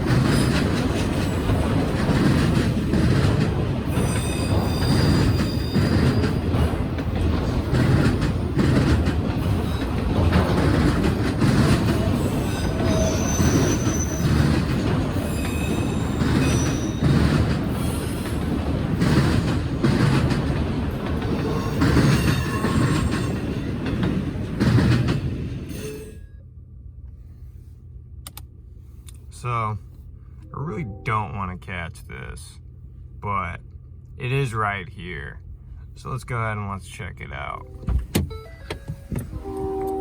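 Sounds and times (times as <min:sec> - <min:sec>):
wheels clicking over rail joints: 0:00.0 - 0:25.7
freight train rumbling: 0:00.0 - 0:40.0
wheel squeals: 0:03.9 - 0:06.8, 0:09.5 - 0:19.2, 0:21.3 - 0:24.0.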